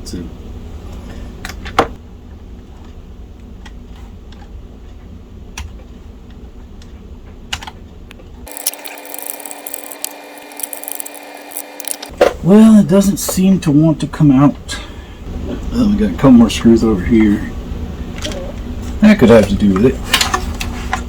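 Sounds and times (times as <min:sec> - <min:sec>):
ratchet clicking: 0:08.5 - 0:12.1.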